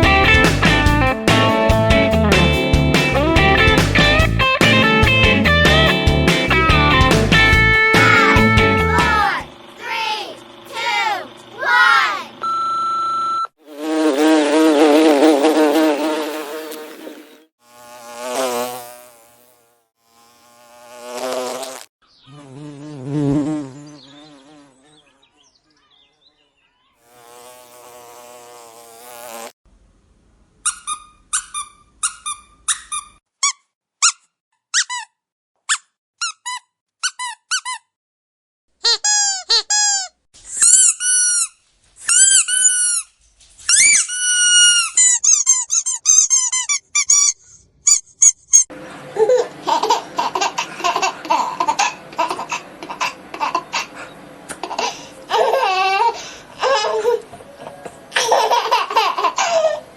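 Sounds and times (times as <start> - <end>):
dog squeaky toy squeaking: 30.6 - 37.9, 38.8 - 43.1, 43.7 - 48.7.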